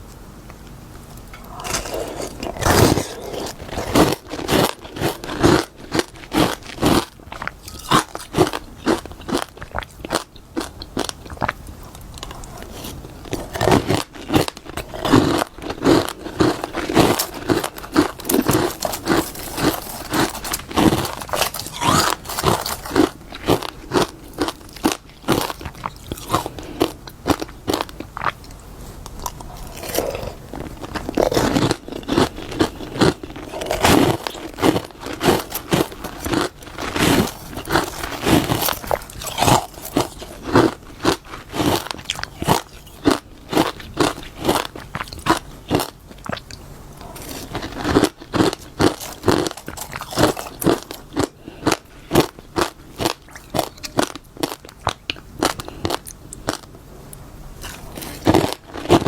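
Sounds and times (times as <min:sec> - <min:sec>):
crunching and chewing frost: 0:00.6 - 0:59.0.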